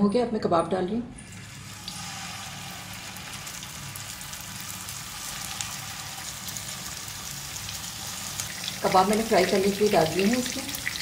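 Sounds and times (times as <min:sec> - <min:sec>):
meat sizzling in hot oil: 0:01.3 - 0:11.0.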